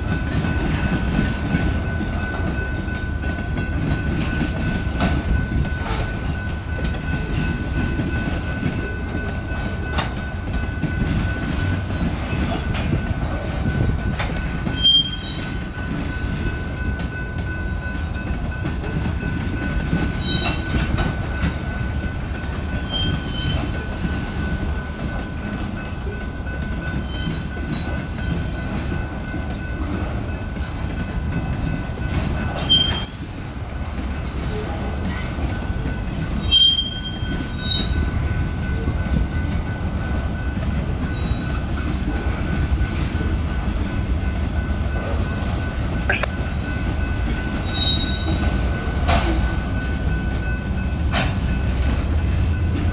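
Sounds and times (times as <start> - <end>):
train wheels rumbling on rails: 0.0 - 52.9
high-pitched wheel squeals: 14.7 - 15.6, 20.1 - 20.8, 22.8 - 23.8, 32.6 - 33.6, 36.4 - 38.0, 47.6 - 48.5.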